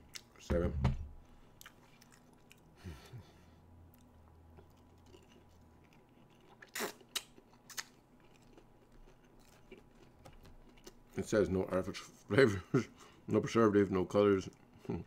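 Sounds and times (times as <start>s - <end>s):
person chewing: 1.5s - 2.8s, 3.9s - 11.2s.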